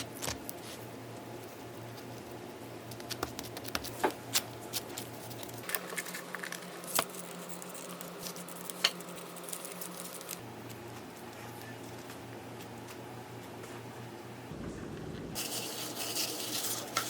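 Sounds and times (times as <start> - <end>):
low steady hum: 4.1 - 17.0.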